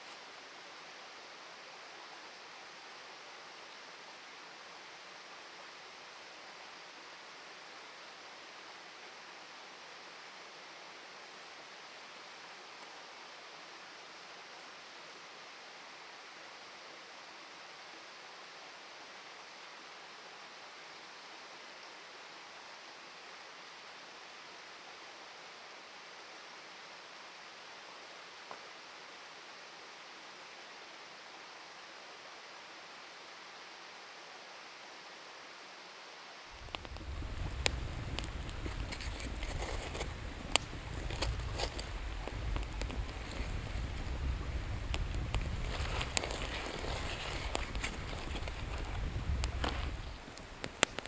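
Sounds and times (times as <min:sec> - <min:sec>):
faint click: 0:36.6 - 0:51.0
river water rushing: 0:36.6 - 0:51.0.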